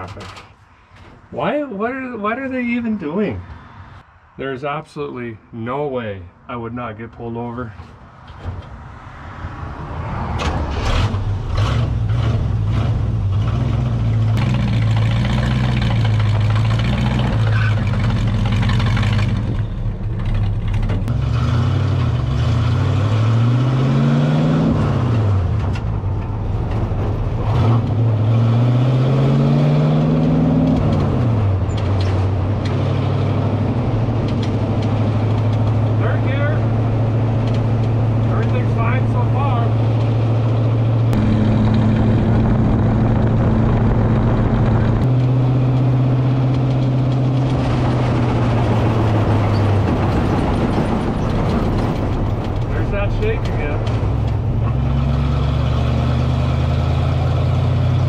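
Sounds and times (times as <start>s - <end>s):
race car engine revving: 21.0s - 25.8s, 27.4s - 58.0s.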